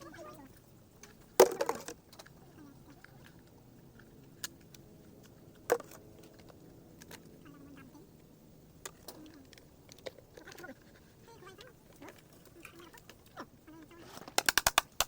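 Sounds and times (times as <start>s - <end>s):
gourd shells knocked and cracking: 1.0s - 2.4s, 4.4s - 7.3s, 14.2s - 15.0s.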